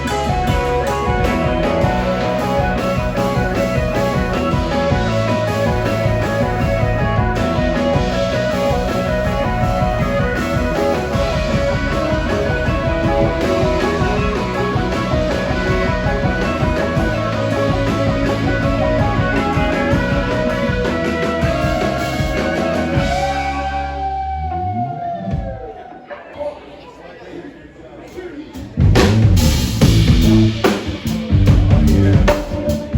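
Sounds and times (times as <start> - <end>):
live rock band playing: 0.0 - 25.9, 28.6 - 32.9
electric guitar: 0.0 - 26.0, 28.8 - 32.9
drum hit: 28.8 - 32.6.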